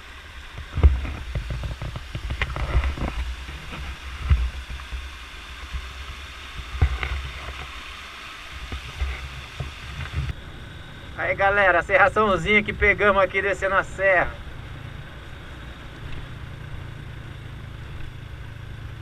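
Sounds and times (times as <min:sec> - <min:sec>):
wind buffeting microphone: 0:08.6 - 0:10.4.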